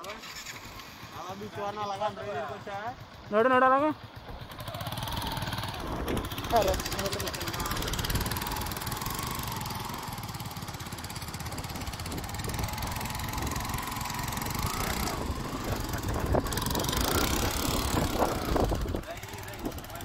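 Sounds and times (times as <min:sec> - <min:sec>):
motorcycle engine revving: 0:00.0 - 0:20.0
wheel spinning in sand: 0:04.4 - 0:20.0.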